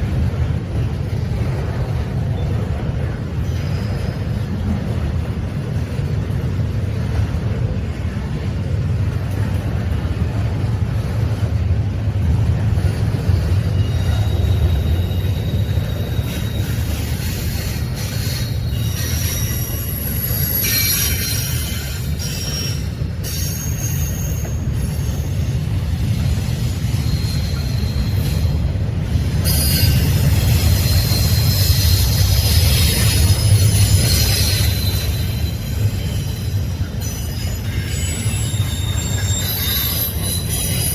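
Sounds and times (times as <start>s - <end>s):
train passing rumble: 0.0s - 40.9s
high-pitched wheel squeals: 13.6s - 25.6s, 26.6s - 28.7s, 29.4s - 40.9s.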